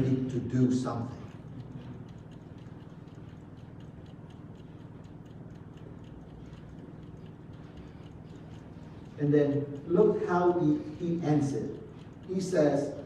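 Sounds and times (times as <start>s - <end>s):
faint steady ticking: 0.0s - 13.0s
low steady hum: 0.0s - 13.0s.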